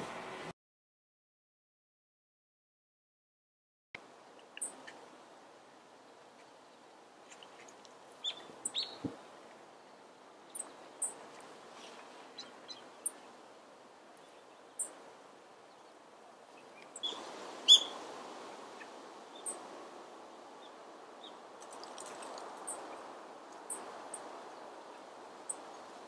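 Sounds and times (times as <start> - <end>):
steady background hiss: 0.0 - 0.5, 4.0 - 26.0
small birds chirping: 4.3 - 5.2, 6.0 - 13.4, 14.1 - 15.0, 15.6 - 18.0, 18.8 - 19.7, 20.5 - 26.0.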